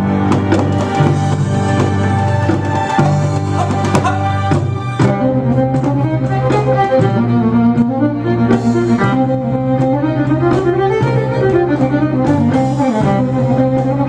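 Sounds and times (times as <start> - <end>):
fiddle melody: 0.0 - 14.0
held bass line: 0.0 - 14.0
drum hits: 0.3 - 6.0.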